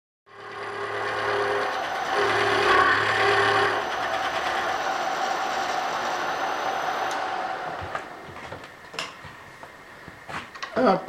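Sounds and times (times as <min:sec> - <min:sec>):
machine grinding and cutting metal: 0:00.3 - 0:08.6
machine motor hum: 0:00.3 - 0:10.3.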